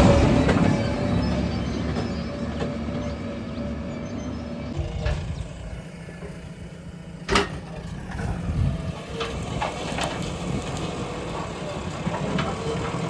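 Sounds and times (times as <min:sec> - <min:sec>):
excavator diesel engine running: 0:00.0 - 0:13.0
light metal clanks: 0:07.2 - 0:08.4.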